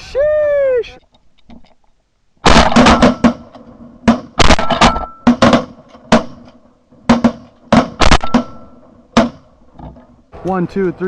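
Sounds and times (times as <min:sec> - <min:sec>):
shotgun blasts: 0:02.4 - 0:09.5.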